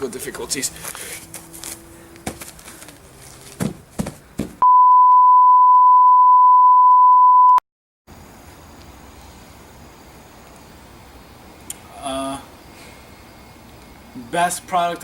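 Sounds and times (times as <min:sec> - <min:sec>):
high-pitched test-tone beep: 0:04.6 - 0:07.6.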